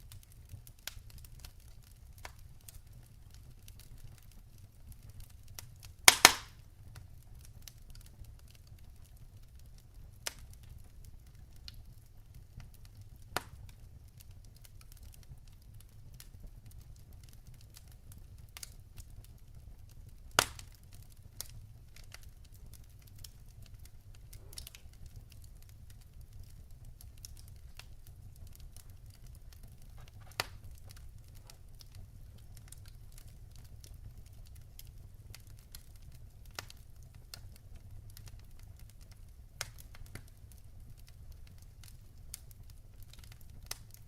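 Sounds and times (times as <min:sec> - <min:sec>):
logs crackling in fireplace: 0:00.0 - 0:44.0
low rumble of flames: 0:00.0 - 0:44.0
sharp wood pops: 0:06.1 - 0:06.5.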